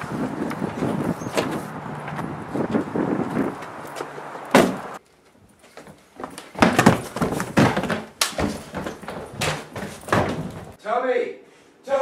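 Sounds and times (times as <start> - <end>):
door thudding shut: 4.5 - 4.9, 7.6 - 10.8
heavy thumps: 4.5 - 5.0, 5.8 - 10.8.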